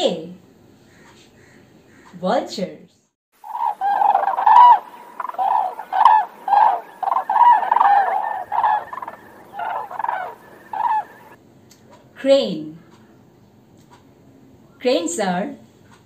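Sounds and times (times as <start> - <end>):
bird harsh calls: 3.4 - 11.4.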